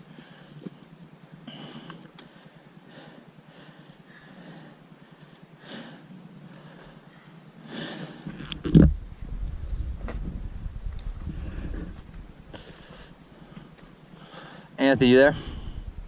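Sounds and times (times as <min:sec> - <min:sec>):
heavy breathing: 0:01.4 - 0:08.5, 0:11.1 - 0:16.0
low rumble: 0:08.6 - 0:13.9, 0:15.0 - 0:16.0.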